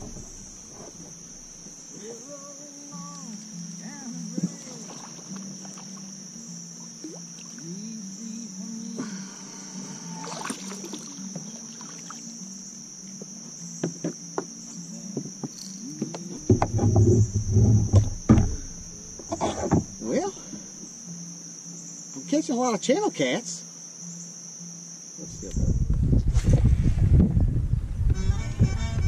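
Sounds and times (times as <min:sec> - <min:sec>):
loud low rumbling and knocks: 0:00.0 - 0:01.7, 0:16.4 - 0:20.0, 0:25.7 - 0:28.2
insects droning high-pitched: 0:00.0 - 0:29.0.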